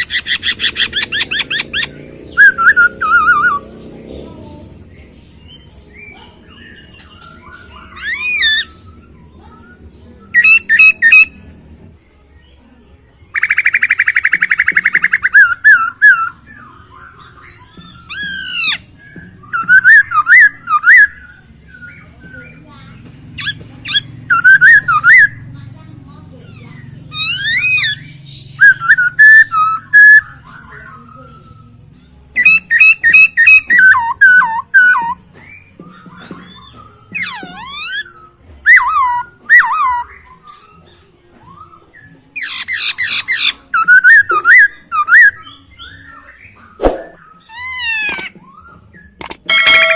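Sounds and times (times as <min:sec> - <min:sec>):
bird singing loud whistles: 0:00.0 - 0:03.6, 0:10.3 - 0:11.3, 0:17.4 - 0:21.2, 0:27.0 - 0:31.6
soft bird chattering: 0:00.0 - 0:11.4, 0:13.3 - 0:25.5, 0:26.3 - 0:48.4
bird trill: 0:00.0 - 0:11.5, 0:13.3 - 0:25.6, 0:26.3 - 0:49.9.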